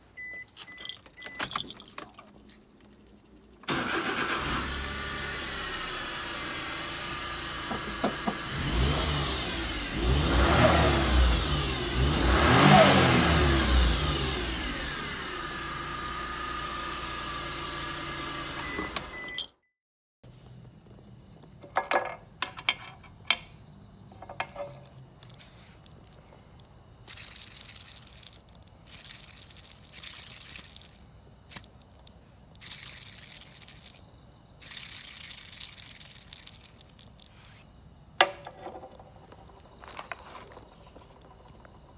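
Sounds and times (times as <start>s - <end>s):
car engine starting and running: 3.6s - 19.4s
belt pulley whine: 3.7s - 19.3s.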